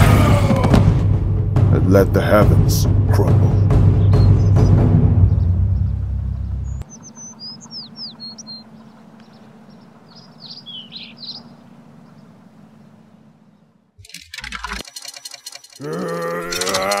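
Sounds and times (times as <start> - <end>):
small birds chirping: 3.4 - 14.0
faint low outdoor hum: 5.2 - 17.0.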